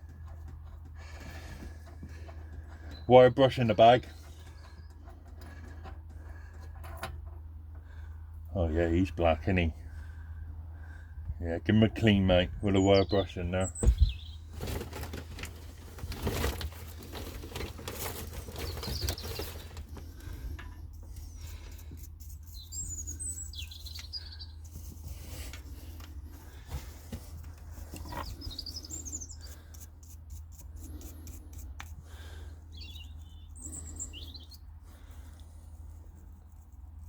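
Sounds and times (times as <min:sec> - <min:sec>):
small birds chirping: 0:00.0 - 0:06.6, 0:12.0 - 0:14.8, 0:18.0 - 0:26.7, 0:27.3 - 0:35.6.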